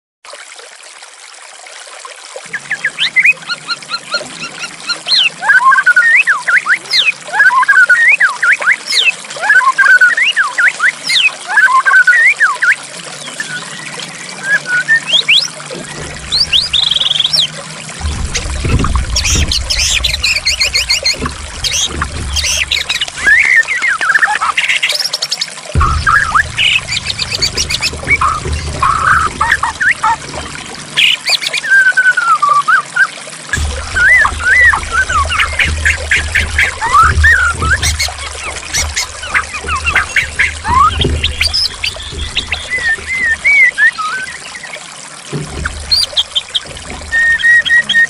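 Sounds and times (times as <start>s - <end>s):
water trickling: 0.2s - 48.0s
bird singing whistles and trills: 2.5s - 17.5s, 18.3s - 30.4s, 31.0s - 44.8s, 45.7s - 48.0s
bird singing whistled notes: 31.0s - 44.7s, 45.9s - 48.0s.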